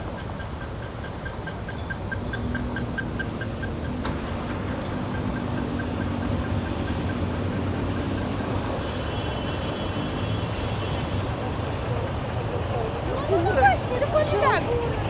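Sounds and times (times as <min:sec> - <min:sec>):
fast even ticking: 0:00.0 - 0:11.5
passing vehicles rumbling: 0:00.0 - 0:15.0.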